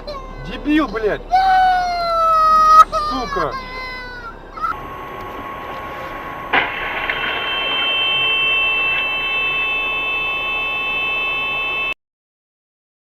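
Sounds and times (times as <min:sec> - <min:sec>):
steady high-pitched tone: 0:01.8 - 0:12.0
crash impact: 0:04.8 - 0:09.8.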